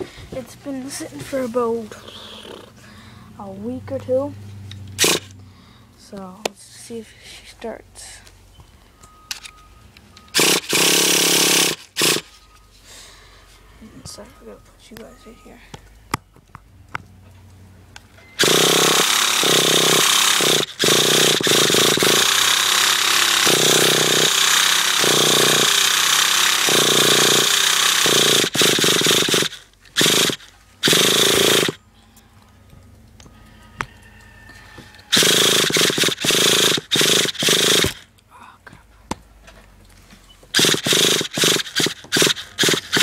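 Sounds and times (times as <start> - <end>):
small engine cranking: 4.7 - 5.4, 10.3 - 12.4, 18.3 - 31.8, 35.0 - 38.1, 40.5 - 43.0.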